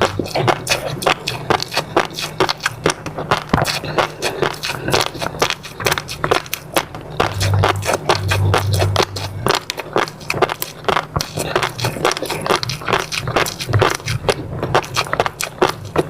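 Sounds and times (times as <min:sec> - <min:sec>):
wet chewing sounds: 0:00.0 - 0:16.0
low hum: 0:04.8 - 0:14.8.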